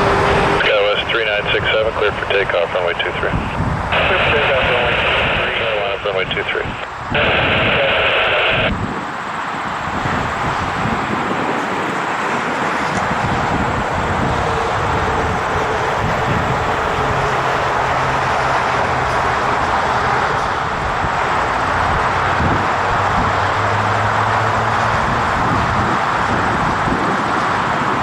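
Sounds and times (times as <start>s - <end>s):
jet engines roaring: 0.0s - 28.0s.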